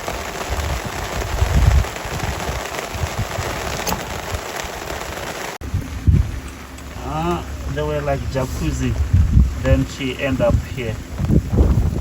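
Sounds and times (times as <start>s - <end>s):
rain pattering: 0.0s - 12.0s.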